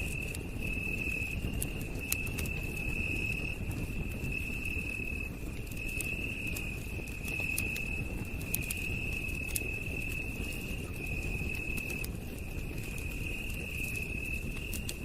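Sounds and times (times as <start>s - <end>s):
campfire crackling: 0.0s - 15.0s
night insects trilling: 0.0s - 15.0s.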